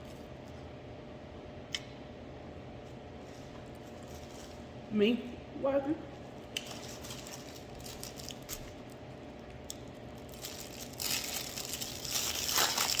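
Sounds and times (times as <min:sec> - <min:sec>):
food wrapping crinkling: 0:03.2 - 0:04.9, 0:06.5 - 0:13.0.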